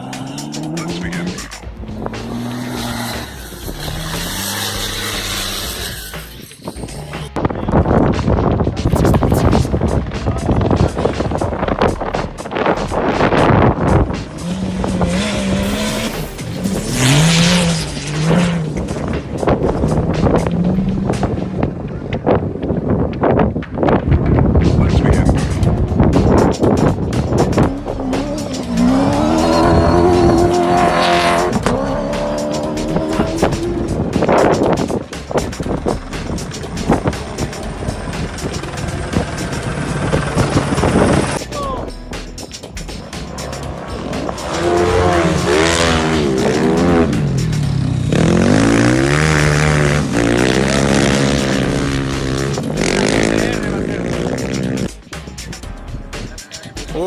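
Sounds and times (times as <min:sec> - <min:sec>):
racing vehicle engine revving: 0:00.0 - 0:07.4, 0:12.9 - 0:21.4, 0:26.2 - 0:41.4, 0:43.0 - 0:55.0
wind crackling on microphone: 0:04.8 - 0:15.9, 0:16.6 - 0:30.6, 0:32.9 - 0:41.4
steady engine note: 0:25.3 - 0:42.1, 0:42.9 - 0:55.0.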